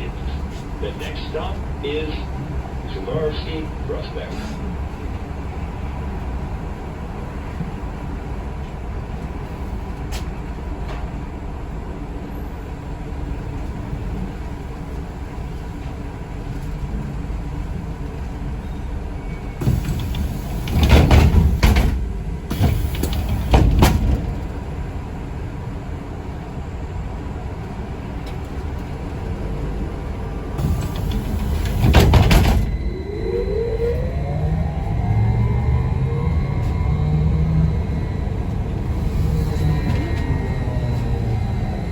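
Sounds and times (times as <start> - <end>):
bus doors opening and closing: 0.0 - 5.4, 7.3 - 11.5, 18.0 - 41.9
bus running rumble: 0.0 - 41.9
vehicle whine pulling away: 27.8 - 41.9.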